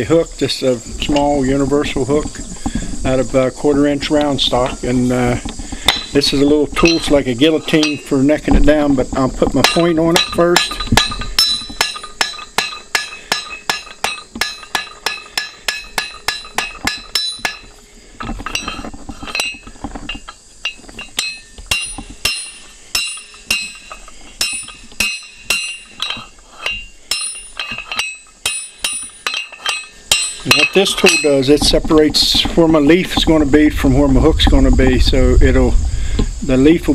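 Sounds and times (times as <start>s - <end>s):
hammer ringing on anvil: 6.8s - 8.2s, 9.6s - 17.7s, 20.6s - 31.5s.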